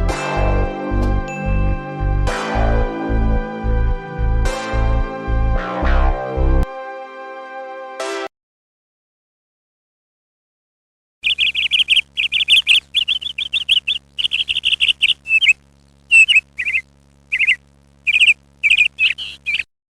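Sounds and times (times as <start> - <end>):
birds chirping: 11.2 - 19.7
faint low hum: 11.2 - 19.7.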